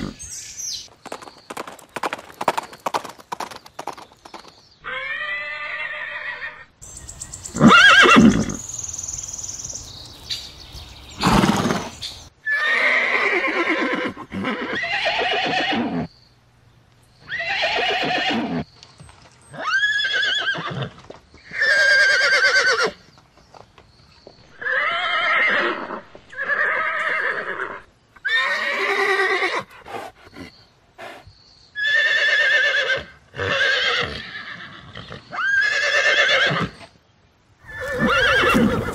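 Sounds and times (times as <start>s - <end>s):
horses whinnying and neighing: 0.0s - 0.4s, 4.8s - 6.7s, 7.5s - 8.7s, 11.2s - 16.1s, 17.2s - 18.7s, 19.5s - 23.0s, 24.6s - 31.2s, 31.8s - 36.9s, 37.6s - 38.9s.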